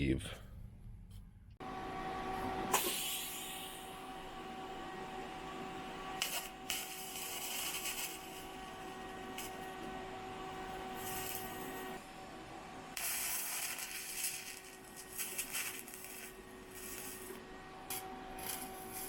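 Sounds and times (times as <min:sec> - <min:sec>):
welding arc hissing and whining: 0:02.7 - 0:04.4, 0:05.8 - 0:12.0, 0:12.9 - 0:19.0
welding crackles: 0:06.2 - 0:09.8, 0:10.9 - 0:11.8, 0:13.0 - 0:19.0.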